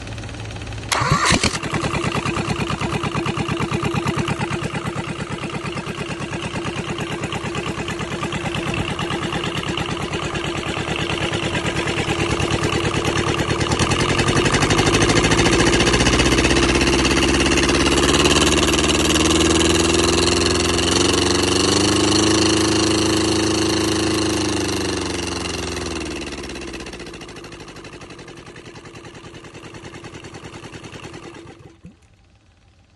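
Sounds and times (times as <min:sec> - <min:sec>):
diesel engine running: 0:00.0 - 0:32.9
sharp engine burst: 0:00.9 - 0:04.7.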